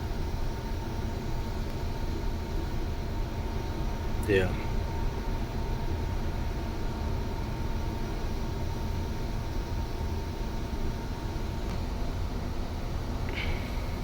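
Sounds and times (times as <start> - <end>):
faint constant whine: 0.0 - 14.0.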